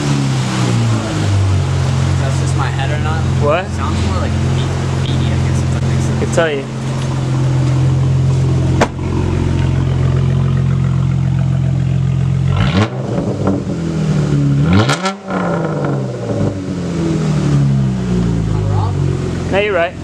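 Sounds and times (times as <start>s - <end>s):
car engine running and revving: 0.0s - 20.0s.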